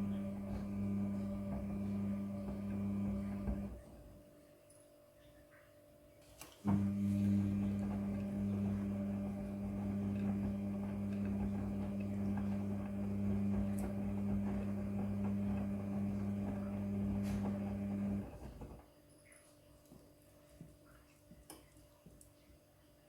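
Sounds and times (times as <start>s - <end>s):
washing machine electrical hum: 0.0s - 23.0s.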